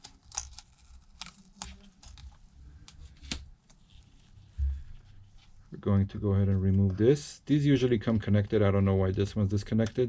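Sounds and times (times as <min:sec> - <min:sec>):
tape peeling: 0:00.0 - 0:05.6.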